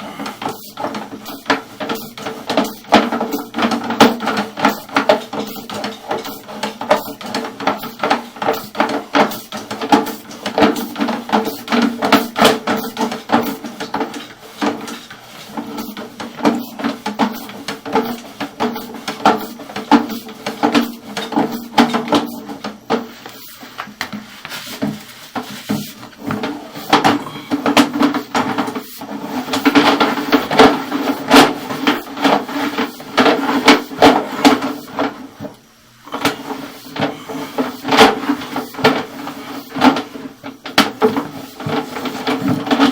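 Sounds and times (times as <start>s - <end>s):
steady hum: 0.0s - 41.6s.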